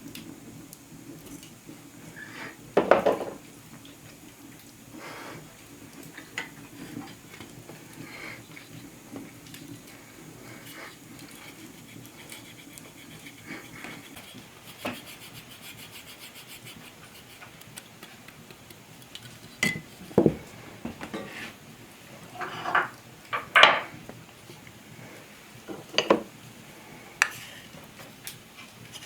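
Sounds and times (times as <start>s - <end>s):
utensils and cookware knocking: 2.8s - 3.4s.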